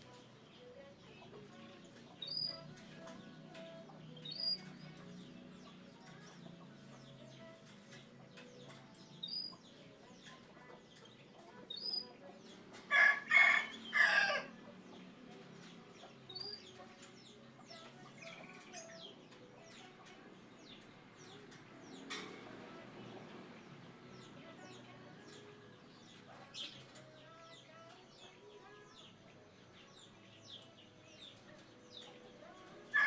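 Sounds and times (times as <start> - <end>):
small birds chirping: 0.0 - 33.0
rooster crowing: 12.9 - 14.5.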